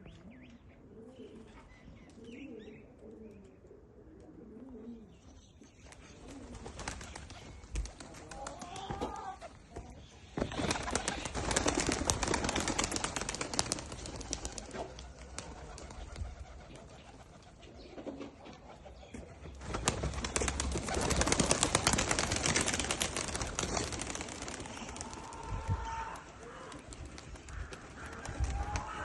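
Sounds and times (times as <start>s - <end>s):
pigeons cooing: 0.1s - 5.4s, 6.0s - 29.0s
wings fluttering: 6.2s - 9.6s, 10.4s - 29.0s.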